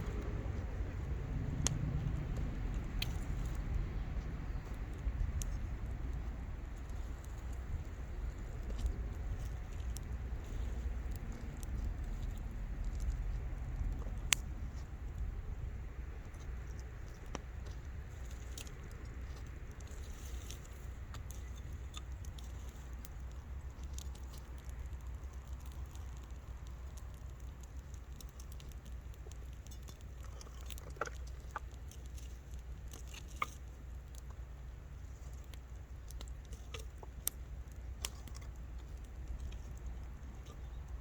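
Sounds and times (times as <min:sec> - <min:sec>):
low rumble: 0:00.0 - 0:18.0
campfire crackling: 0:00.0 - 0:41.0.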